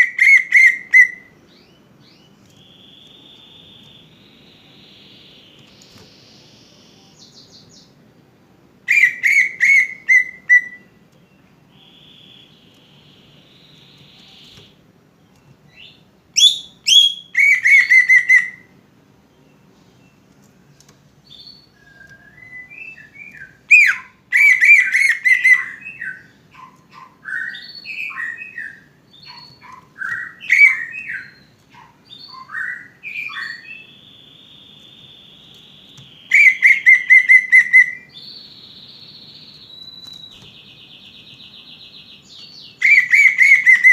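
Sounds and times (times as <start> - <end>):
faint high buzz: 2.4 - 7.4
bird song chattering and whistling: 8.9 - 18.7, 21.2 - 43.9.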